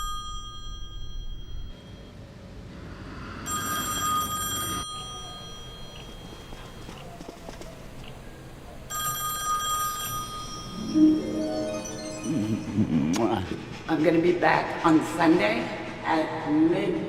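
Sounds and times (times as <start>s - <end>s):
electronic ringing tone: 8.9s - 13.1s.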